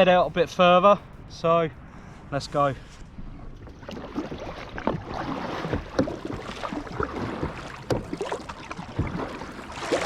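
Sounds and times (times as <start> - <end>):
paddle splashes and water drips: 3.6 - 10.0.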